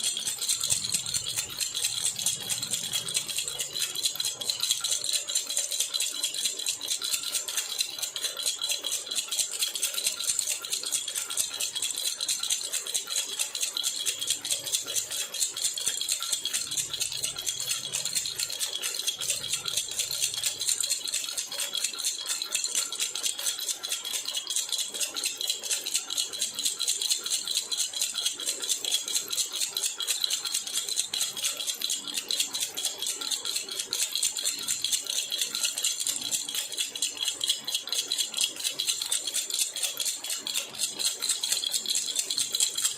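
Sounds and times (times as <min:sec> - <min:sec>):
metal baby rattle jingling: 0:00.0 - 0:09.2, 0:28.2 - 0:42.9.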